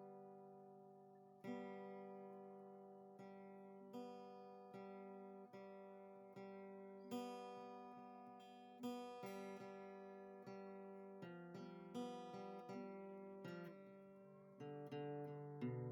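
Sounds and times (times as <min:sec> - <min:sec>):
acoustic guitar chords: 0:00.0 - 0:15.9.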